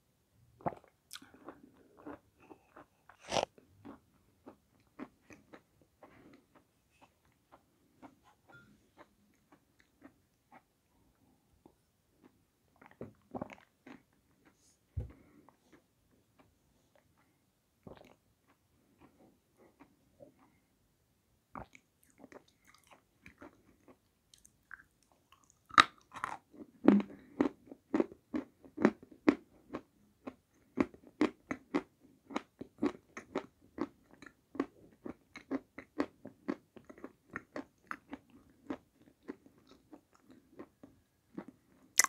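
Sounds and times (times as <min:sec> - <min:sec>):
crunching and chewing clay: 0:21.6 - 0:42.0.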